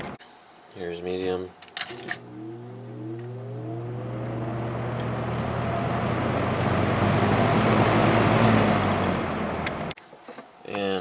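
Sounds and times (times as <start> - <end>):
fan motor hum: 1.9 - 10.0.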